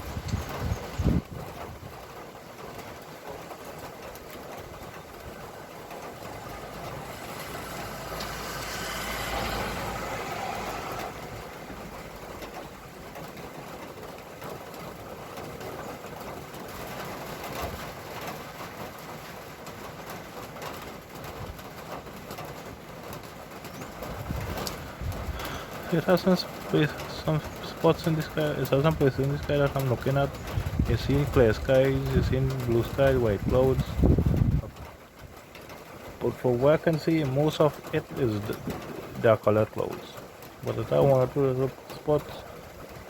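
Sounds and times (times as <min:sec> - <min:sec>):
vehicle driving past: 0:06.3 - 0:12.0
steady background hiss: 0:23.8 - 0:34.0, 0:35.9 - 0:43.0.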